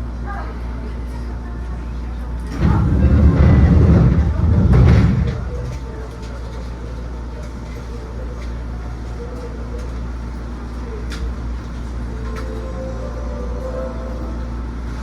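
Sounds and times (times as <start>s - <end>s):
train wheels rumbling on rail: 2.4s - 9.1s.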